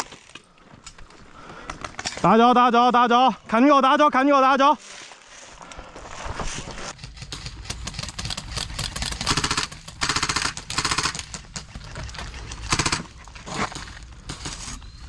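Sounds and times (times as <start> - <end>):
airsoft gun full-auto bursts: 7.1 - 11.5, 12.4 - 13.2.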